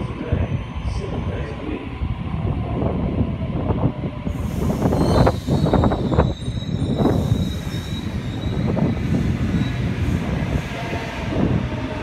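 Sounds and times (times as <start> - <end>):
train rumble: 0.0 - 12.0
thin high wheel squeal: 4.8 - 8.7.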